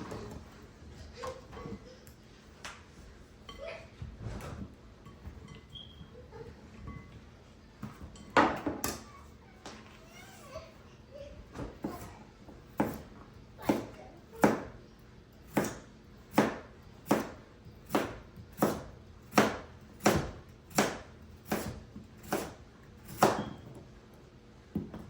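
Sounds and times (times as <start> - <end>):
knife chopping on cutting board: 12.8 - 14.8, 15.5 - 23.6.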